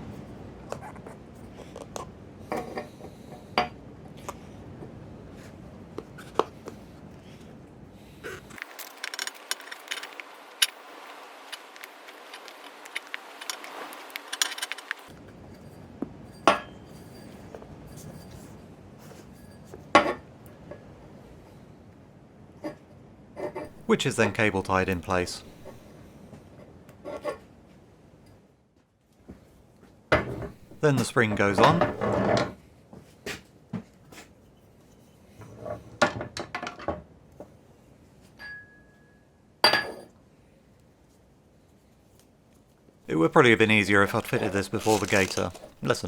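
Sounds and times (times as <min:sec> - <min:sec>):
rubbing and scraping: 0:43.1 - 0:46.0.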